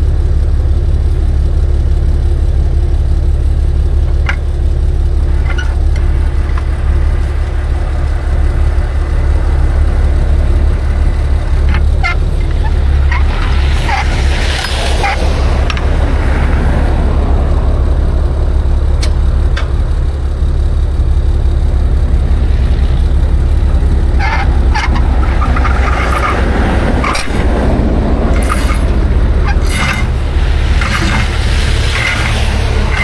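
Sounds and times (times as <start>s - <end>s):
truck engine rumbling: 0.0s - 33.0s
scraping and clinking: 5.2s - 9.2s, 9.9s - 16.0s, 24.0s - 33.0s.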